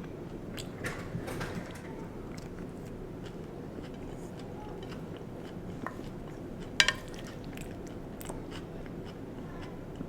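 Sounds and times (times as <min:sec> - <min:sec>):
person chewing food: 0:02.4 - 0:09.7.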